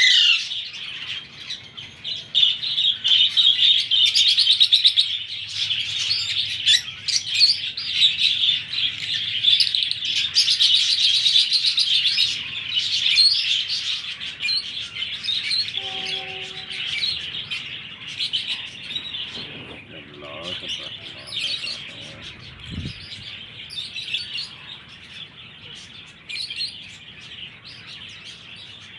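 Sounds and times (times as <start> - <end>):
parakeet chicks chirping: 5.1 - 28.9.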